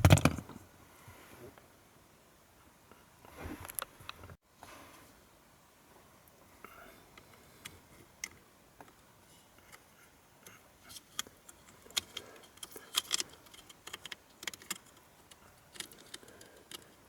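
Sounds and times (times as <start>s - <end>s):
light clicks and taps: 10.4s - 17.0s.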